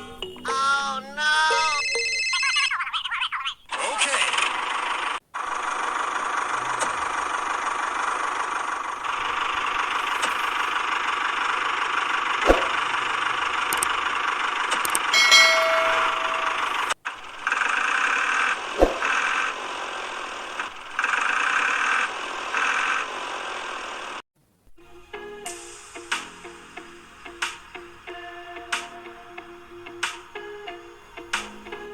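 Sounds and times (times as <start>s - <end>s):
small motor whirring: 4.3s - 15.2s, 16.6s - 24.2s.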